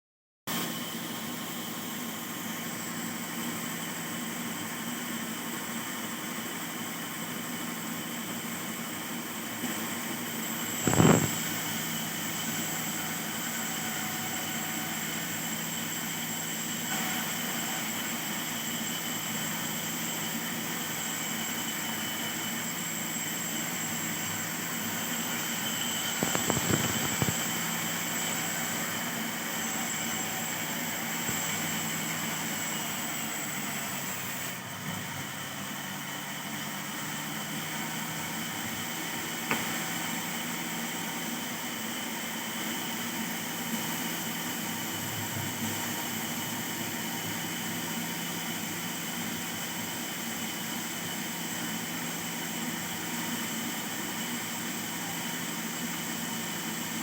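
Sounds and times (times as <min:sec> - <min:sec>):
motor humming: 0:10.6 - 0:11.8, 0:23.8 - 0:32.5.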